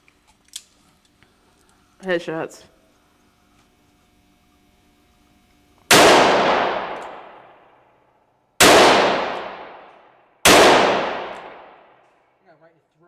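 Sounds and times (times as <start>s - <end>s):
handgun shots echoing indoors: 5.9s - 7.7s, 8.6s - 12.2s.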